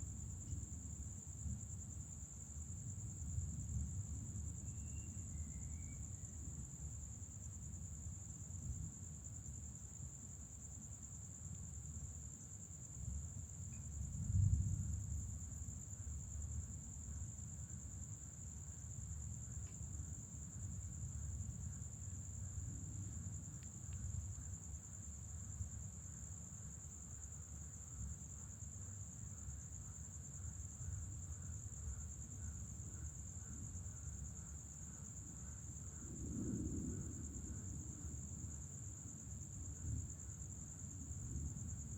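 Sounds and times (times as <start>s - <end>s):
night insect chorus: 0.0s - 41.9s
distant thunder rumble: 36.0s - 38.1s.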